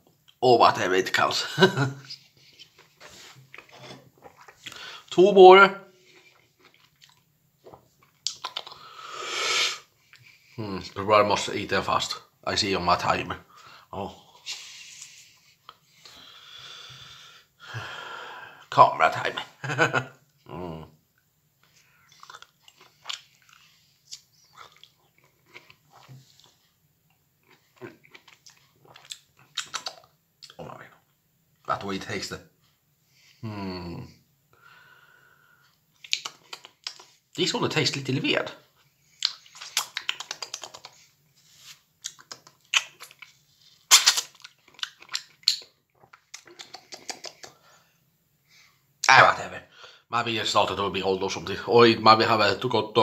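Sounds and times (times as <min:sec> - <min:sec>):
person chewing mandarins: 0:02.0 - 0:05.2, 0:06.0 - 0:09.2, 0:21.2 - 0:31.7, 0:35.6 - 0:37.4, 0:38.7 - 0:47.8.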